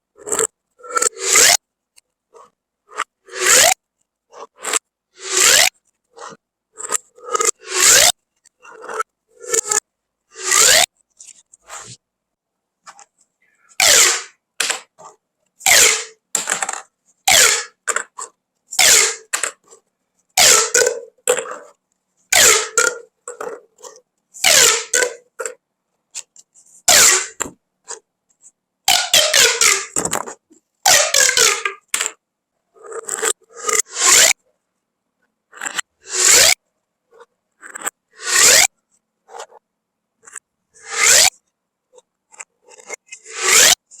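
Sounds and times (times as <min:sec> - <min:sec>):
plastic pop tubes rasping: 0:00.2 - 0:01.6, 0:04.4 - 0:09.8, 0:10.4 - 0:12.0, 0:12.9 - 0:19.8, 0:20.4 - 0:25.6, 0:26.2 - 0:28.0, 0:28.9 - 0:32.2, 0:42.0 - 0:44.0.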